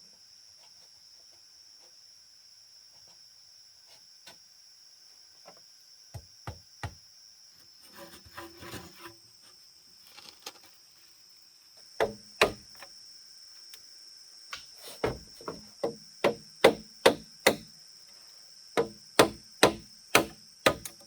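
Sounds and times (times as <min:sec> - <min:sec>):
high-pitched insect drone: 0:09.3 - 0:21.0
sharp knocks: 0:15.0 - 0:17.7.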